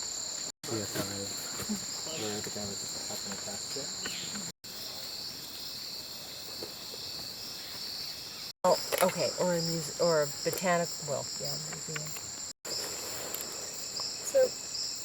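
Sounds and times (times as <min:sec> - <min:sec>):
insects droning: 0:00.0 - 0:15.0
faint voices: 0:00.7 - 0:04.5.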